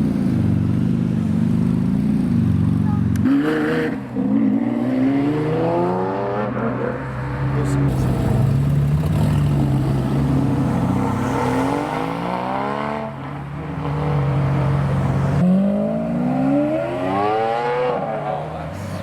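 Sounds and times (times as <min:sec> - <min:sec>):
car engine accelerating: 0:07.5 - 0:18.5.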